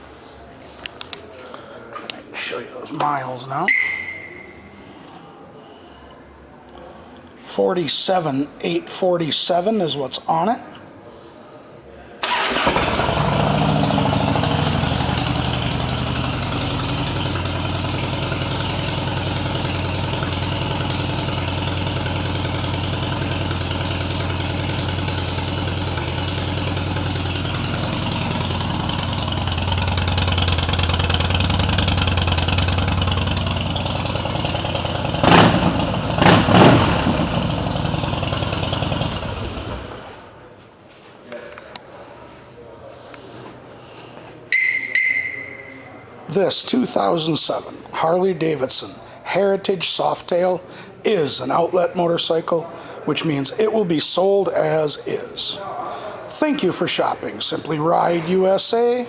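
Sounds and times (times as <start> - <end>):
throttle blips: 3.7 - 5.0, 44.5 - 45.9
motorcycle engine idling: 12.3 - 40.4.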